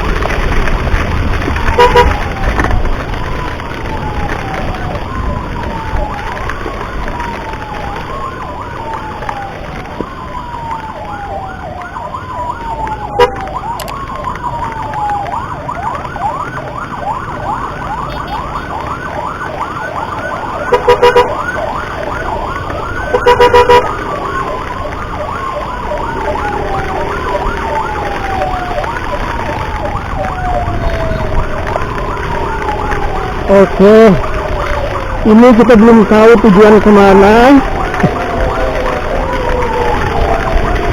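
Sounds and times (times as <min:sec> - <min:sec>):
ambulance siren wailing: 0:00.0 - 0:40.9
wind and road noise: 0:00.0 - 0:40.9
vehicle horn blasts: 0:01.8 - 0:02.1, 0:20.8 - 0:21.3, 0:23.1 - 0:23.8.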